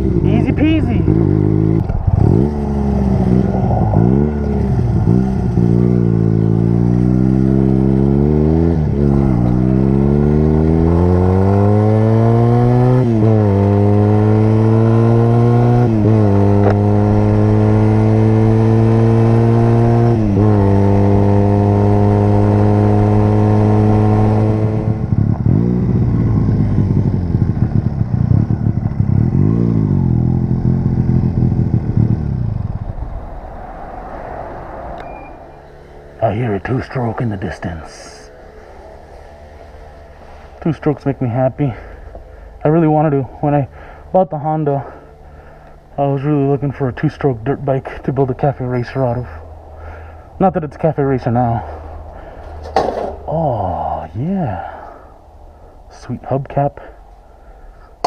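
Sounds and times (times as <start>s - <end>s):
rushing wind noise: 0.0s - 14.4s, 31.0s - 35.6s
motorcycle engine accelerating: 0.0s - 58.0s.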